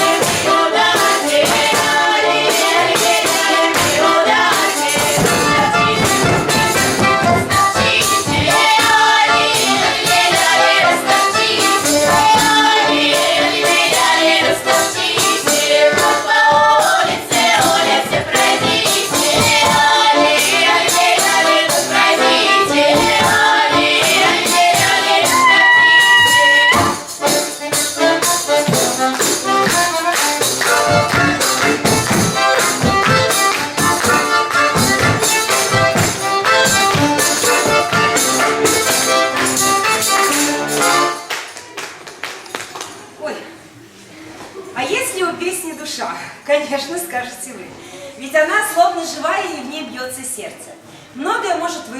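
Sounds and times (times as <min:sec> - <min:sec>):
dense rhythmic percussion: 0:00.0 - 0:25.5, 0:26.1 - 0:40.9.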